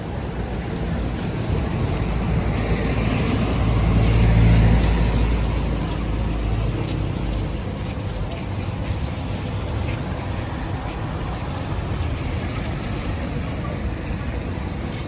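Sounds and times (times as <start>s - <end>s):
vehicle engine passing by: 1.4s - 7.6s.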